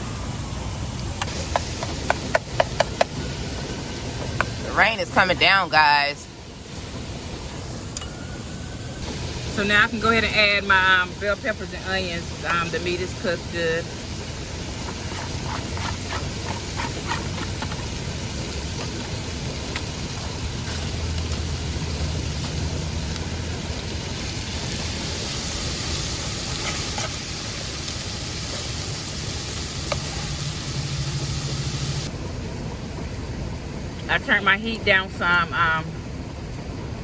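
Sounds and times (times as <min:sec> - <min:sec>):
meat sizzling in a frying pan: 0:01.3 - 0:07.5, 0:09.0 - 0:32.1
utensil stirring in pan: 0:14.4 - 0:31.6.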